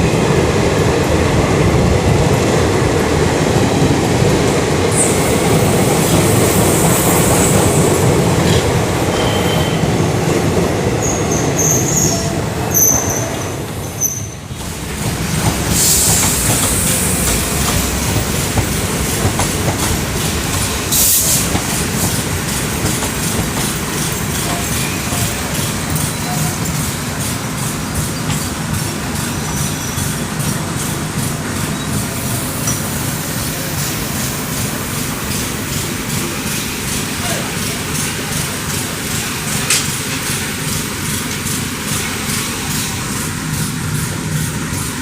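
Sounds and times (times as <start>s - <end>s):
train wheels clicking over rail joints: 14.0s - 45.0s.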